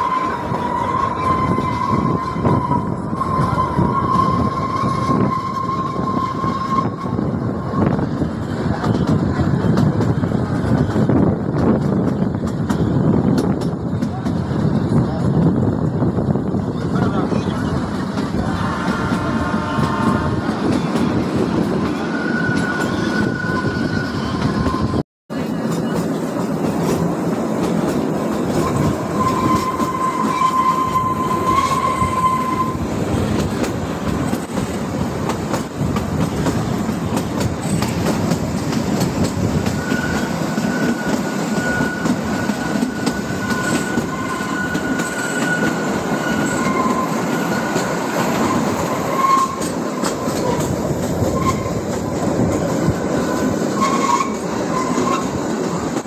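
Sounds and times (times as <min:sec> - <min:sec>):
high wheel squeal: 0:00.0 - 0:08.1, 0:18.4 - 0:25.0, 0:28.5 - 0:32.9, 0:39.5 - 0:52.0, 0:52.8 - 0:55.4
train wheels rumbling on rail: 0:00.0 - 0:56.0.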